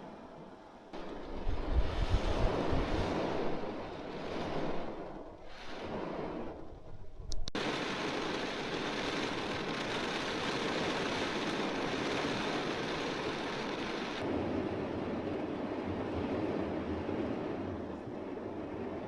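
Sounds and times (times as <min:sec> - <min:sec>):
heavy rain hissing: 0:07.6 - 0:14.2.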